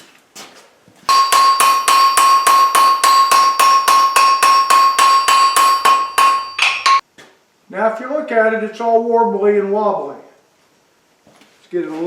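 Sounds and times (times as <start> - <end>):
hammer striking steel on anvil: 1.1 - 7.0.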